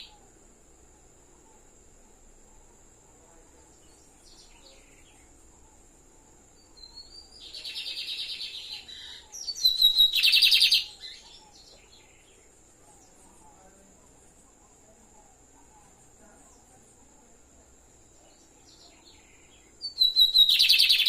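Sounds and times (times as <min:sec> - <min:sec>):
bird singing buzzy trills: 0:00.0 - 0:00.3, 0:02.5 - 0:13.7, 0:17.8 - 0:21.0.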